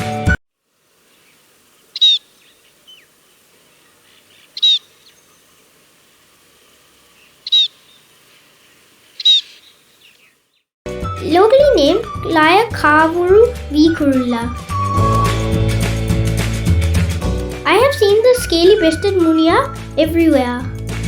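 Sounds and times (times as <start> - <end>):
short high bird calls: 1.1 - 5.7, 7.1 - 10.7.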